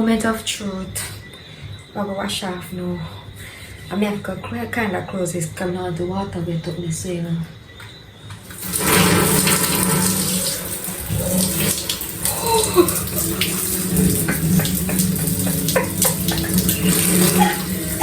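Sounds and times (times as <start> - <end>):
shower water splattering: 8.4 - 18.0.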